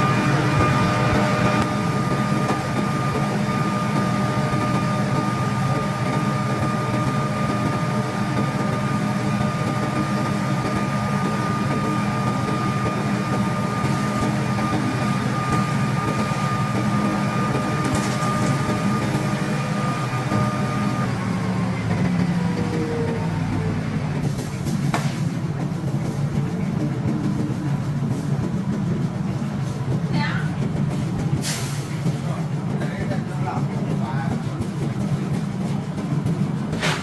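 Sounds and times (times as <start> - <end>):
machine motor whining: 0.0 - 23.7.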